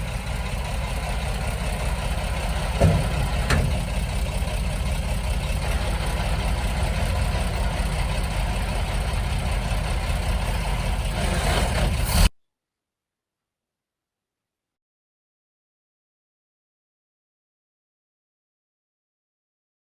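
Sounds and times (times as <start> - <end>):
heavy machine engine idling: 0.0 - 12.3.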